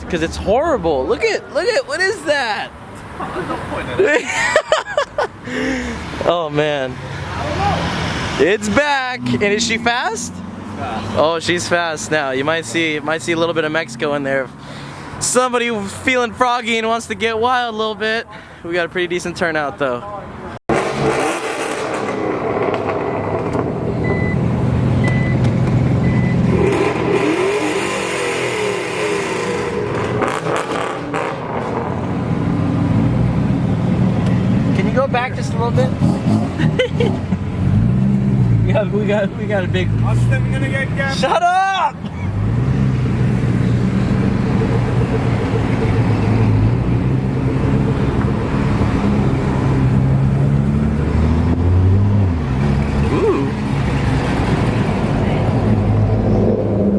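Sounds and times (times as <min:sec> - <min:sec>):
car engines running: 0:00.0 - 0:56.9
short high beeps: 0:25.0 - 0:25.4.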